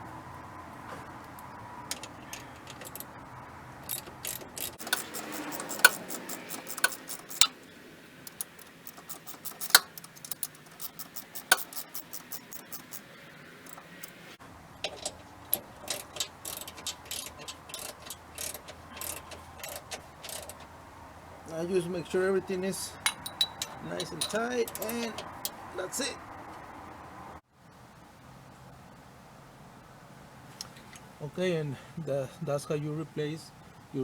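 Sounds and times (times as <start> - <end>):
ratchet wrench clicking: 3.8 - 7.6, 8.2 - 14.4, 15.5 - 20.7, 23.1 - 25.6.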